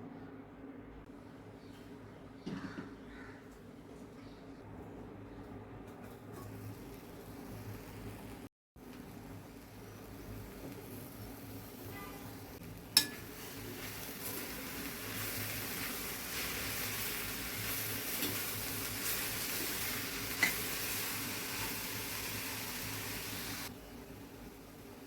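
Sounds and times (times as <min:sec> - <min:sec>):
vegetables sizzling in a pan: 0:06.3 - 0:25.0.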